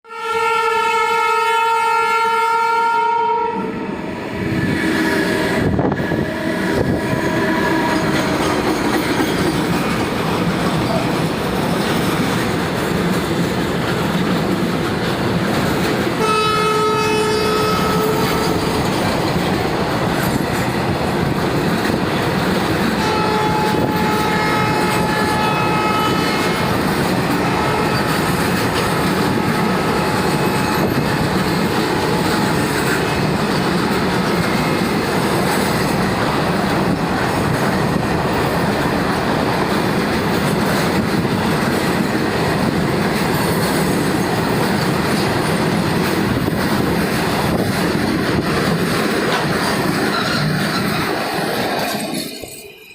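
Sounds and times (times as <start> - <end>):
locomotive horn: 0.0 - 8.5, 16.2 - 18.8, 22.9 - 33.2
wheels running on rail: 3.8 - 52.9.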